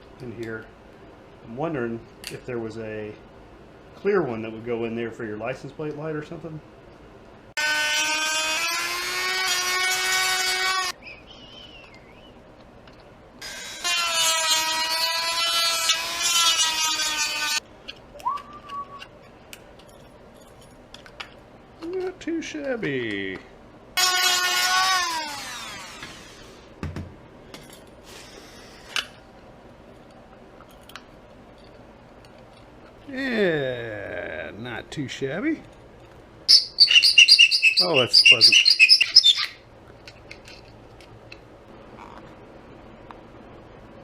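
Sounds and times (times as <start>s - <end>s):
handheld power tool whining: 13.4s - 17.6s, 24.0s - 26.5s.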